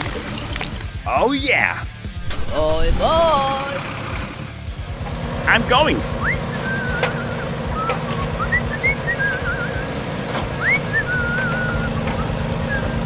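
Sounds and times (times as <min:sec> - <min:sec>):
whistling: 0:06.1 - 0:13.0.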